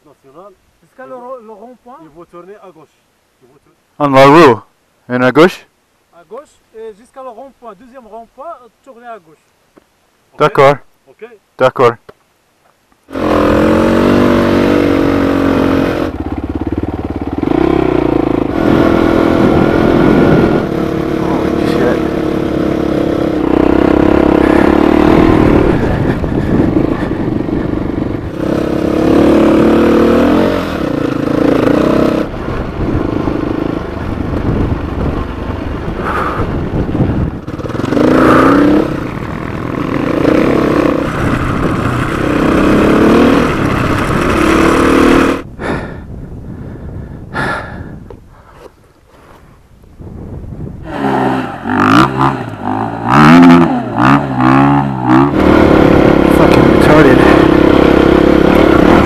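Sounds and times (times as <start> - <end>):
motorcycle engine revving: 13.1 - 46.0, 50.7 - 59.0.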